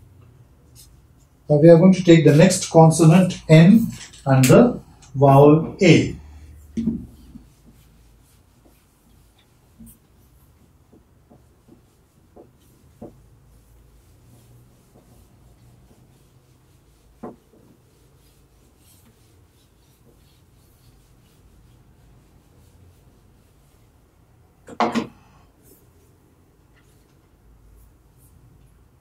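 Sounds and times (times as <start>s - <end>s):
writing on a board: 6.6s - 23.8s
light taps and knocks: 10.8s - 13.3s.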